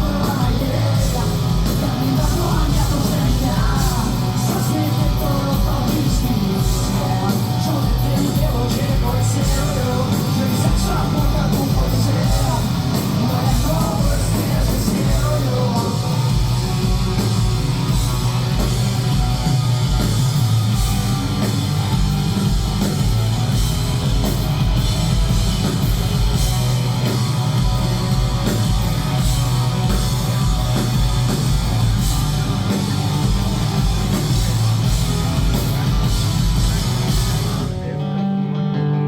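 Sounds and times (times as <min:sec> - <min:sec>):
drum kit beat: 0:00.0 - 0:37.8
distorted electric guitars: 0:00.0 - 0:39.0
rock band playing: 0:00.0 - 0:39.0.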